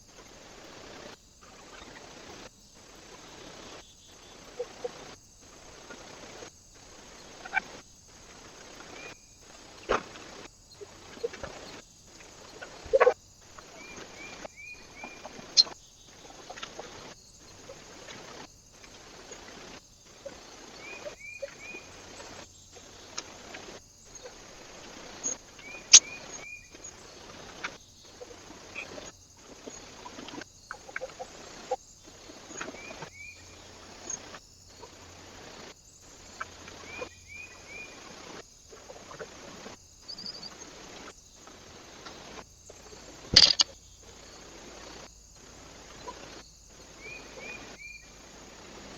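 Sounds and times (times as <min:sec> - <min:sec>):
steady hiss: 0:00.0 - 0:48.9
sharp clicks and taps: 0:43.4 - 0:43.7.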